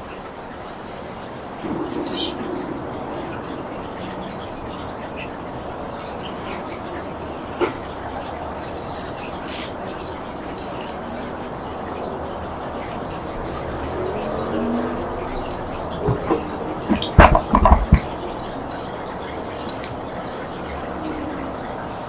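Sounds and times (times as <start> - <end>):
wind rushing: 1.6 - 4.8
bird chirping: 1.6 - 11.7, 12.8 - 17.3.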